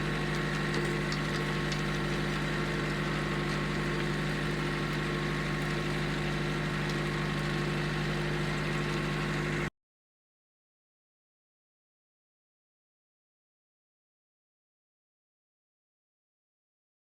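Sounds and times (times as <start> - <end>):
engine running steadily: 0.0 - 9.7.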